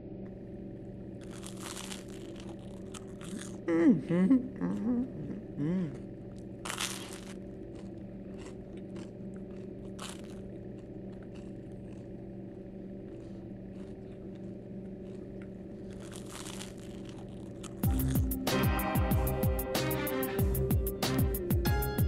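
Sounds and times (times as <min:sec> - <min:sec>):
steady low hum: 0:00.0 - 0:22.0
person chewing crunchy food: 0:01.2 - 0:03.7, 0:05.8 - 0:18.5.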